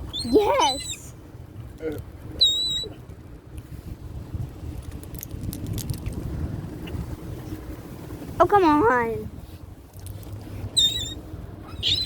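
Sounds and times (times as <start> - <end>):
low steady rumble: 0.0 - 12.0
high-pitched bird calls: 0.1 - 1.1, 2.4 - 3.0, 10.8 - 12.0.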